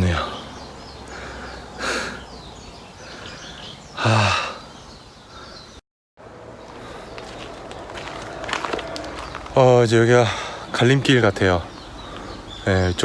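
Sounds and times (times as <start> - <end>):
faint bird calls: 0.0 - 5.8, 10.1 - 13.0
person sighing loudly: 4.0 - 4.7.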